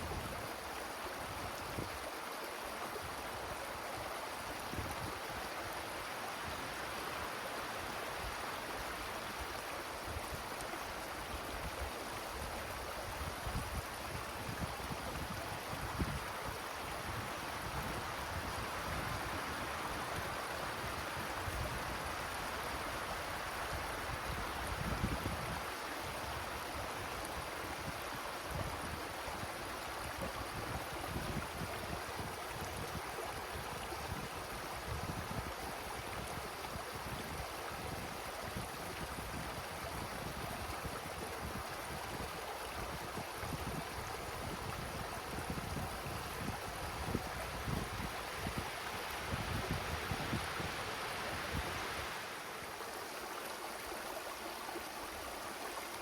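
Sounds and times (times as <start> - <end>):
wind rushing through trees: 0.0 - 56.0
wind gusts rumbling on microphone: 11.3 - 52.4.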